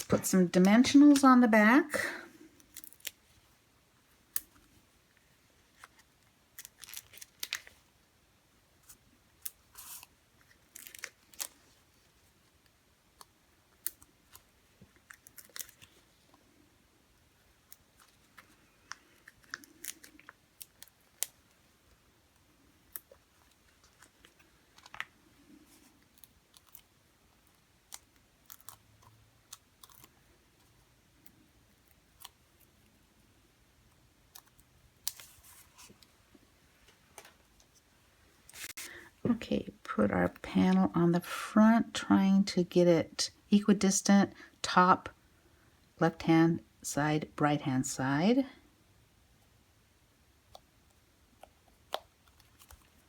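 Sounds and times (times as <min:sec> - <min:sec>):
paper crinkling: 0:05.6 - 0:07.9, 0:08.8 - 0:12.3, 0:13.9 - 0:16.4.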